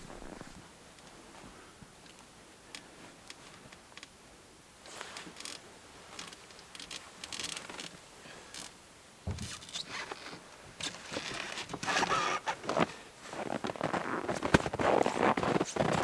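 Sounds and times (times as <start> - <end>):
fabric and gear rustling: 0.0 - 0.6, 9.3 - 16.0
dull thump: 9.3 - 9.7.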